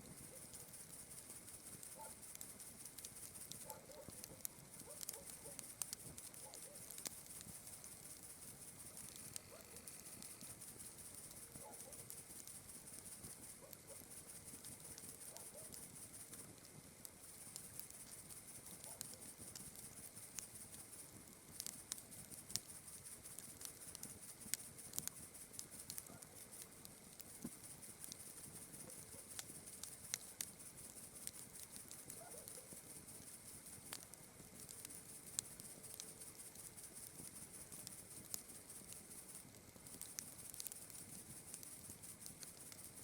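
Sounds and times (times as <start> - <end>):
night insects chirring: 0.0 - 16.5, 17.2 - 43.0
campfire crackling and popping: 0.0 - 43.0.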